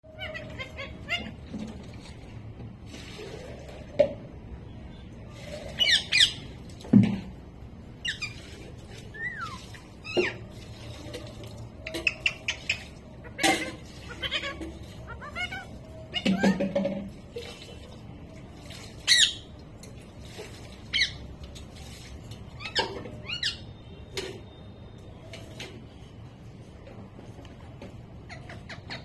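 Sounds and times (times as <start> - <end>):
parrot squawking: 0.0 - 1.8, 5.7 - 6.6, 8.0 - 8.4, 9.0 - 10.5, 12.0 - 16.9, 19.0 - 19.5, 20.9 - 21.3, 22.5 - 23.7, 28.2 - 29.0
parrot whistled calls: 9.1 - 10.4.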